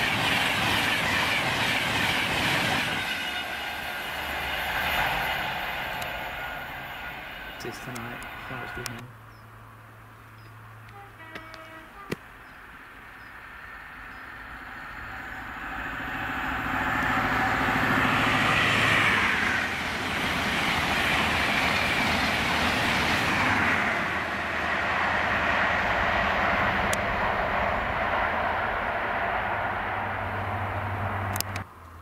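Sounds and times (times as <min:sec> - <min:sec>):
wheels clattering on rails: 0:00.0 - 0:09.1
diesel train passing at speed: 0:00.0 - 0:31.7.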